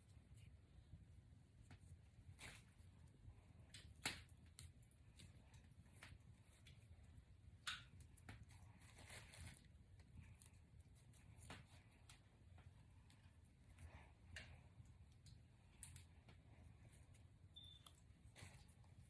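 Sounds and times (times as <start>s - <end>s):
braids rustling and crackling: 1.5s - 19.0s.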